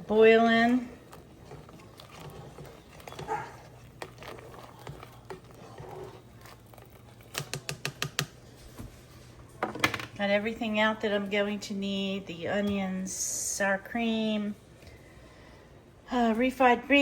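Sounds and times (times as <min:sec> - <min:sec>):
kitchen containers taps and rustles: 0:09.6 - 0:10.2.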